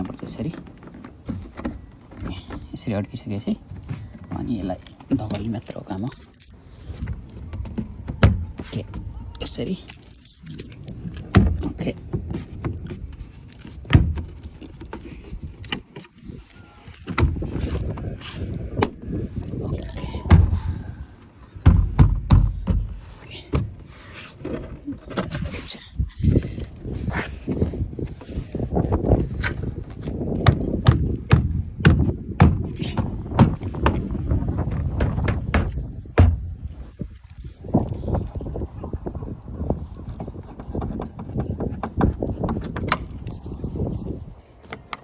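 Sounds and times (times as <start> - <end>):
plastic rubbing and scraping: 0.0 - 36.7, 37.4 - 45.0
plastic panel thuds: 7.1 - 9.2, 11.2 - 13.1, 13.8 - 14.9, 17.1 - 18.1, 20.2 - 20.9, 21.6 - 23.8, 30.3 - 36.6.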